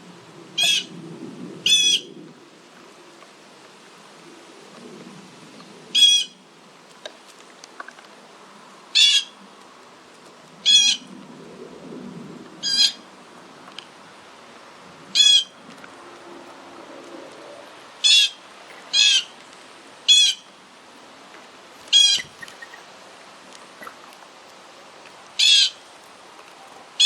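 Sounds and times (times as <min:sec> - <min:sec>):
bird harsh calls: 0:18.0 - 0:19.3, 0:21.8 - 0:23.0, 0:23.7 - 0:24.3.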